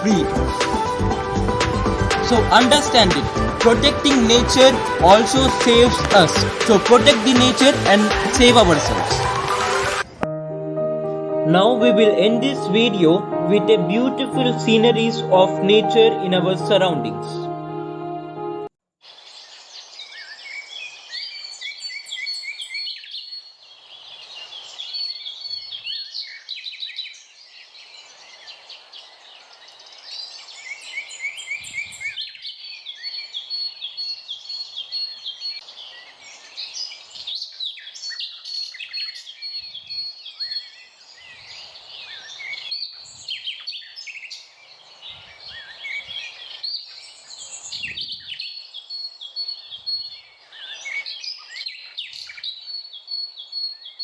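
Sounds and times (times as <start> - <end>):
birds chirping and trilling: 19.4 - 54.0.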